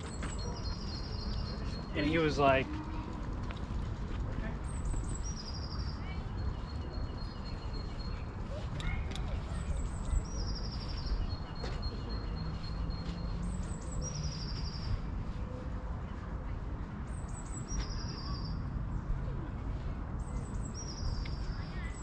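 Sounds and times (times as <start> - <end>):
songbird singing with trill: 0.3 - 2.0.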